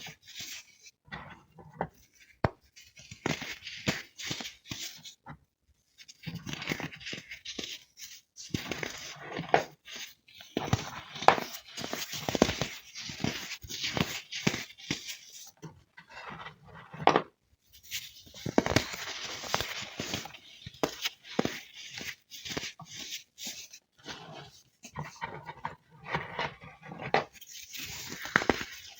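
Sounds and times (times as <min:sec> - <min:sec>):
baking soda crunching and crackling: 0:18.3 - 0:22.9.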